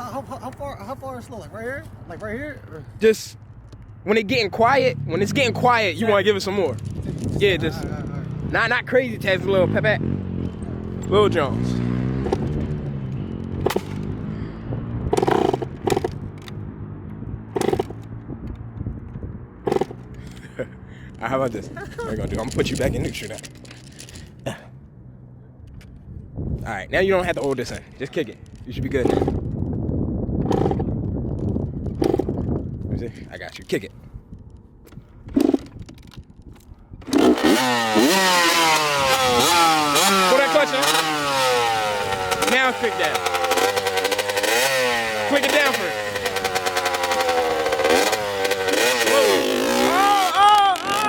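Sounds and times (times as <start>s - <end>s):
dirt bike engine revving: 4.1s - 18.4s, 19.5s - 20.9s, 28.7s - 29.6s, 30.3s - 32.6s, 35.3s - 35.7s, 37.0s - 51.0s
dirt bike kick-start: 12.2s - 12.6s, 13.6s - 14.1s, 15.1s - 16.6s, 17.6s - 18.1s, 19.7s - 20.4s, 28.9s - 29.5s, 30.4s - 31.0s, 31.9s - 32.5s, 34.9s - 51.0s.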